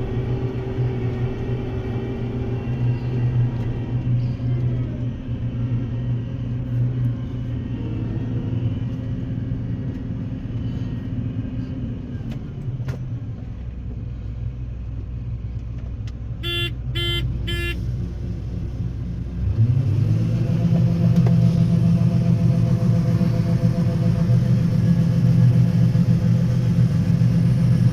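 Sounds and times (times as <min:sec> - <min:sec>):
farm vehicle engine droning: 0:00.0 - 0:27.9
short beeps: 0:16.4 - 0:17.8.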